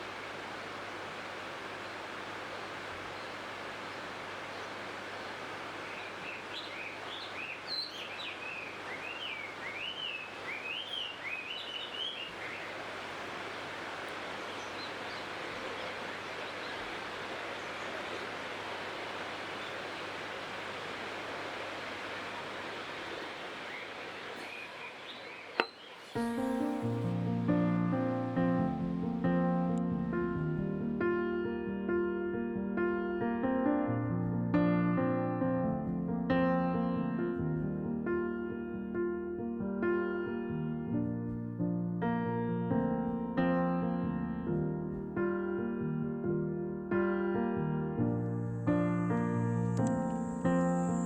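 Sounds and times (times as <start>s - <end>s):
outdoor background noise: 0.0s - 31.6s, 47.8s - 51.0s
songbird twittering: 5.8s - 12.8s, 22.8s - 26.7s
sharp click: 49.7s - 50.2s.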